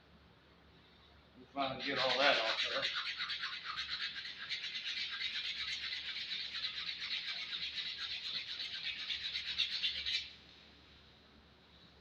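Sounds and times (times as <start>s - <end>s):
sandpaper rasping on wood: 1.8s - 10.1s.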